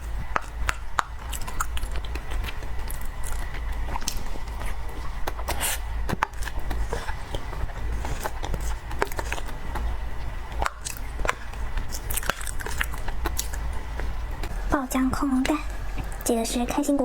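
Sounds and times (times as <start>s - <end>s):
chewing mouth sounds: 0.1s - 16.6s
low hum: 12.9s - 17.0s.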